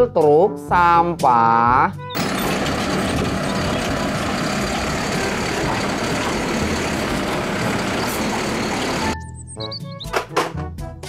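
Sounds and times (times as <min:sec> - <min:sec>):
truck engine running: 0:02.2 - 0:09.2.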